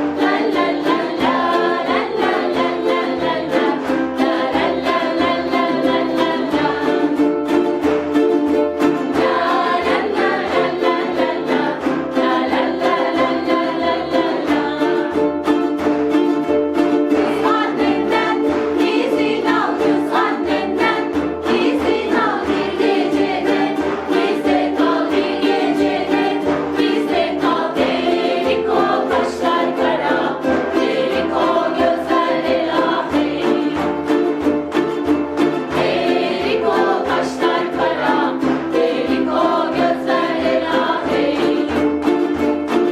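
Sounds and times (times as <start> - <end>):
group of voices singing: 0.0 - 8.1, 8.8 - 15.8, 16.8 - 42.9
ukuleles strumming chords: 0.0 - 42.9.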